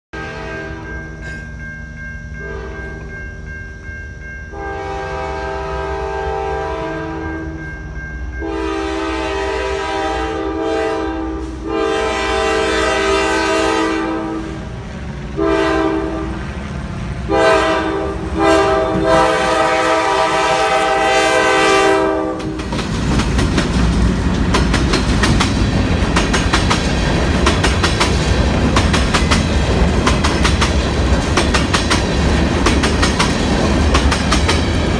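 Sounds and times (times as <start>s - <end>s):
locomotive horn blasts: 0.1s - 1.0s, 2.4s - 3.0s, 4.5s - 7.6s, 8.4s - 16.5s, 17.2s - 22.6s
train wheels clattering over rail joints: 22.4s - 34.9s.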